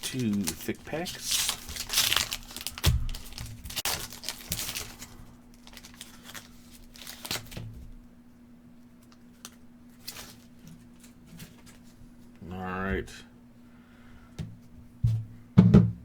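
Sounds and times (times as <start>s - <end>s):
wrapper crinkling and tearing: 0.0s - 7.6s, 9.0s - 11.8s.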